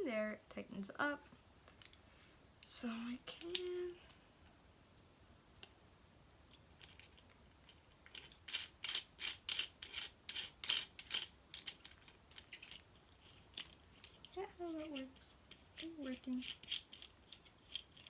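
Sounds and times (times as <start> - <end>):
plastic parts clicking and rattling: 6.5 - 18.0.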